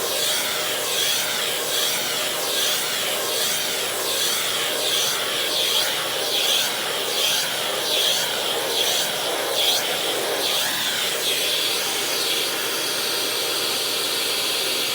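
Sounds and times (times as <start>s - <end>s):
vacuum cleaner running: 5.5s - 14.9s.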